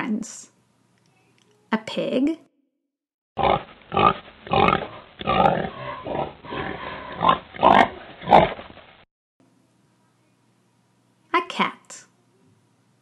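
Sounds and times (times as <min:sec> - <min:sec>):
pig grunting and oinking: 0:03.4 - 0:08.6.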